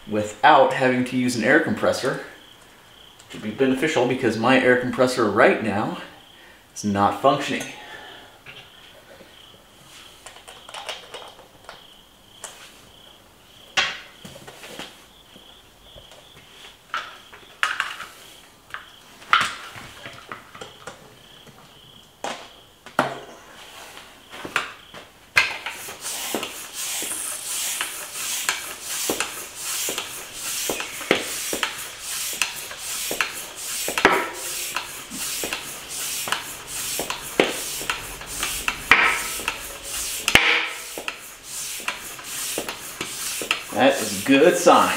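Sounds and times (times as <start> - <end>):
air hissing: 25.5 - 44.9
hand pump strokes: 25.5 - 44.9.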